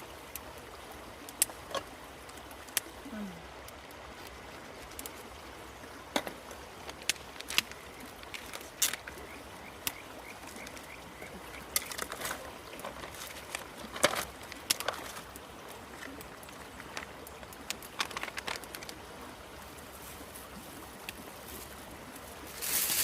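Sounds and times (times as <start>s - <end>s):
river rushing: 0.0s - 23.0s.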